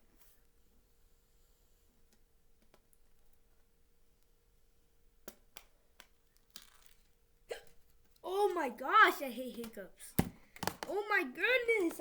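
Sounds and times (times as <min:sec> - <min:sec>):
faint sharp clicks and taps: 0:02.0 - 0:04.3.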